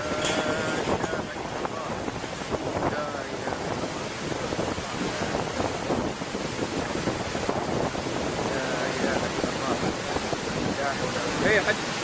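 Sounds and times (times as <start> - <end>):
turbulent water rushing: 0.0 - 12.0
wind buffeting microphone: 0.0 - 12.0.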